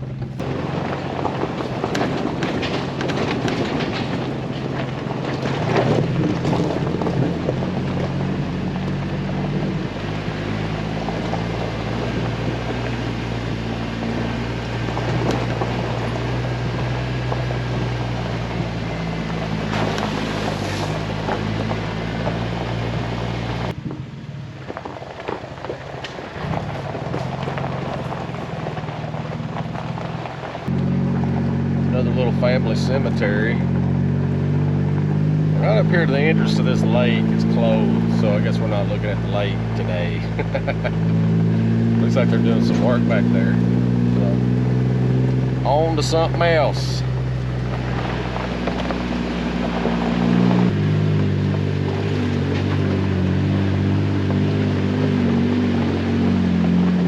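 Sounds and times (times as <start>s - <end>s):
car engine drone: 0.0s - 57.0s
tyre and road noise: 0.0s - 57.0s.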